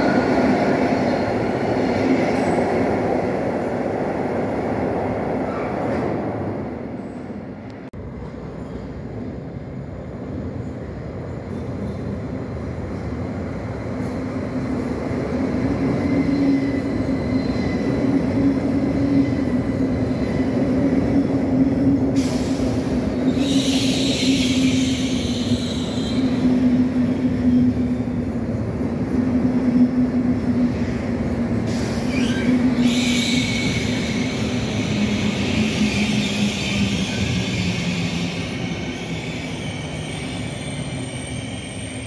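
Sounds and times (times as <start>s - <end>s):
electric train hum: 0.0s - 42.0s
high squeal: 22.2s - 26.6s, 31.7s - 42.0s.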